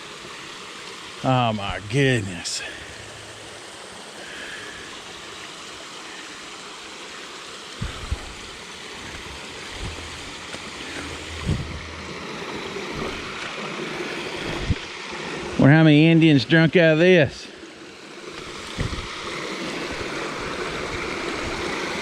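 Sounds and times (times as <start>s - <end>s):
spring water splashing: 0.0s - 15.6s, 17.7s - 22.0s
low thumps: 2.6s - 4.0s, 7.8s - 13.5s, 18.5s - 19.1s.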